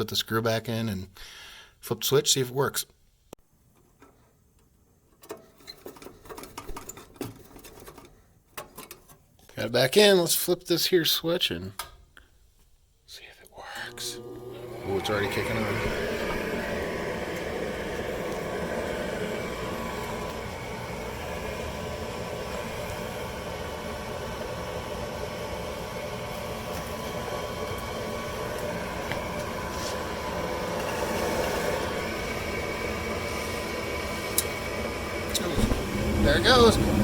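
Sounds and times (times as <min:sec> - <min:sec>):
furnace fan motor whirring: 0:13.6 - 0:37.0.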